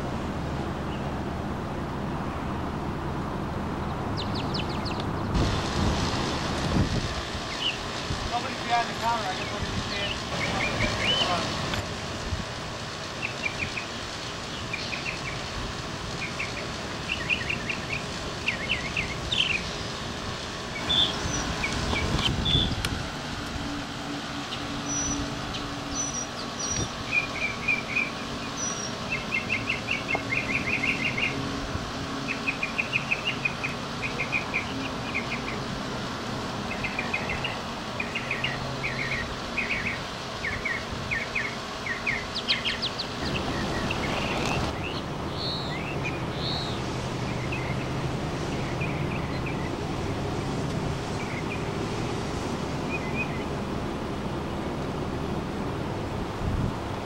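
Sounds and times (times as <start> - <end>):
loud steady rushing noise: 0.0 - 57.0
songbirds trilling: 3.7 - 5.5, 6.9 - 11.8, 12.4 - 53.6.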